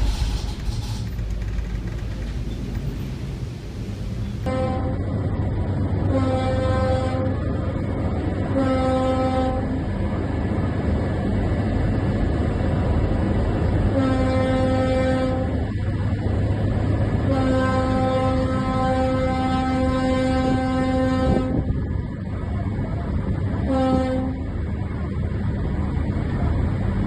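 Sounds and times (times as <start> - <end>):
steady low rumble: 0.0 - 6.1
ship's horn blasts: 4.4 - 5.2, 6.0 - 7.5, 8.4 - 9.9, 13.9 - 15.8, 17.2 - 21.9, 23.5 - 24.6.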